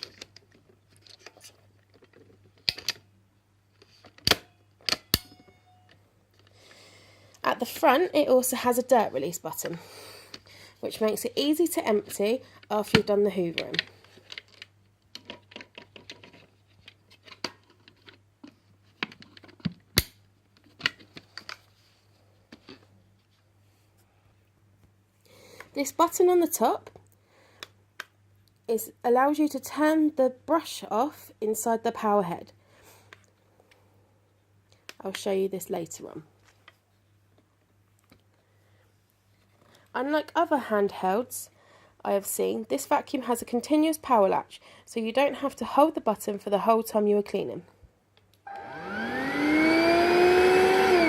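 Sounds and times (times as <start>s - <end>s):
plastic clicks and rattles: 0.0s - 3.1s, 12.9s - 21.7s
faint steady hum: 0.0s - 51.0s
sharp plastic snap: 19.9s - 20.2s.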